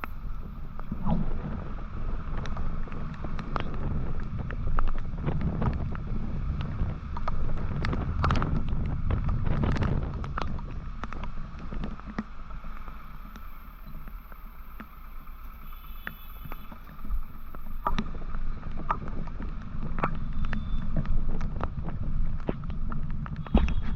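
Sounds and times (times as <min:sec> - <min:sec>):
wind rushing over microphone: 0:00.0 - 0:15.3, 0:16.3 - 0:23.9
motorcycle rumble: 0:00.0 - 0:23.9.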